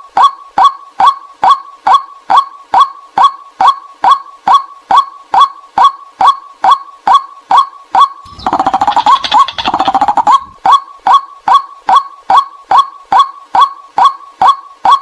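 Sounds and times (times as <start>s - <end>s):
waterhen calling: 8.3s - 10.6s.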